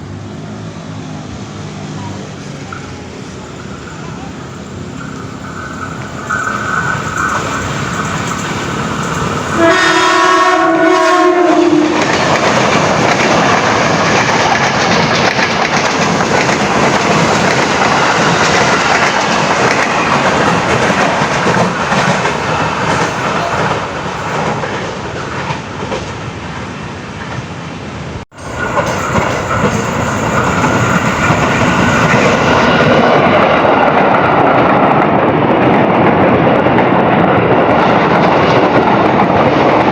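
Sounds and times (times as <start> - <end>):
train running noise: 0.0 - 39.9
wheel clatter on rails: 2.5 - 9.7, 11.9 - 26.2, 28.4 - 39.9
train horn blast: 9.5 - 12.2.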